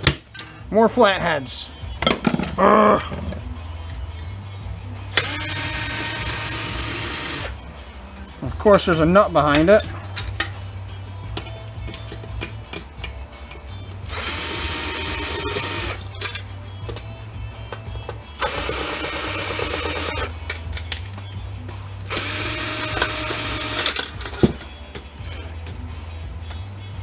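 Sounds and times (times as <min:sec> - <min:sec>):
background music: 0:00.0 - 0:27.0
power drill whining: 0:05.2 - 0:07.6, 0:14.1 - 0:16.0, 0:18.4 - 0:20.3, 0:22.1 - 0:24.1.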